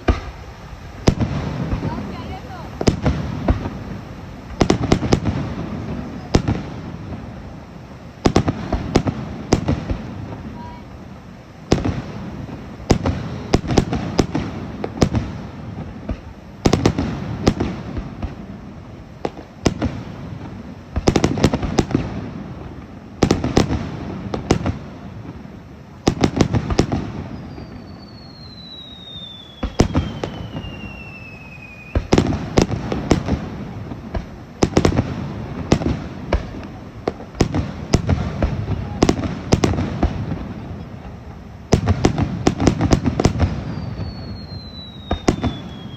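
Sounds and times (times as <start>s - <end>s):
fireworks bursting with bangs: 0.0s - 45.9s
fireworks crackling: 0.0s - 45.9s
falling whistle: 27.3s - 32.1s, 43.6s - 45.9s.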